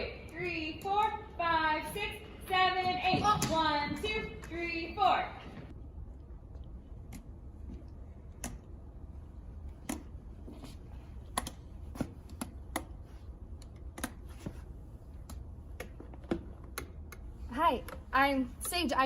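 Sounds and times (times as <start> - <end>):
low steady hum: 0.0 - 19.0
shoes tapping on hard floor: 2.8 - 4.6.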